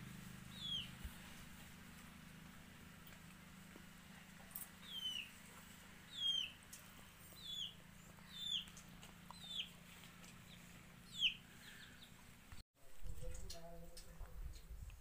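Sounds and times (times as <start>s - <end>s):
bird chirping: 0.5s - 1.0s, 4.7s - 12.3s.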